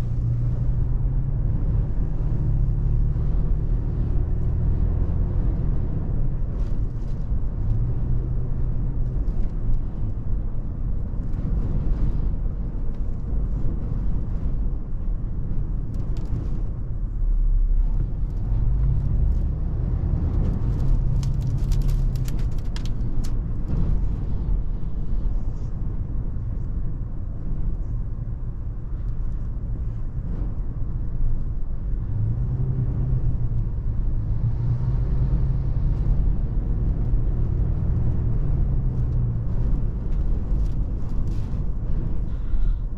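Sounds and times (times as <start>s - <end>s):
car engine driving: 0.0s - 42.9s.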